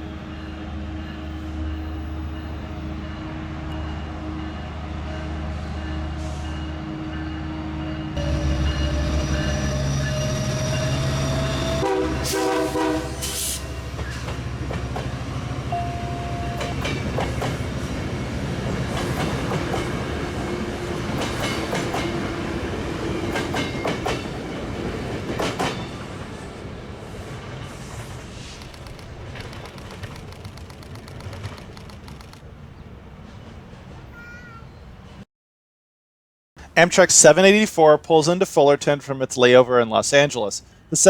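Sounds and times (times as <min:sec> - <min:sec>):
train horn chord: 0:00.0 - 0:14.1, 0:15.7 - 0:17.0
diesel locomotive engine running: 0:00.0 - 0:32.4
wheels clicking over rail joints: 0:27.5 - 0:32.5.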